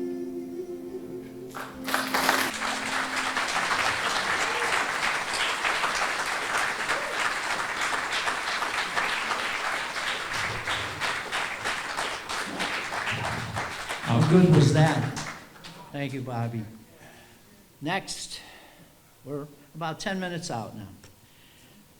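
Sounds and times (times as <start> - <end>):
person singing: 0.0 - 3.2
audience applauding: 1.5 - 15.9.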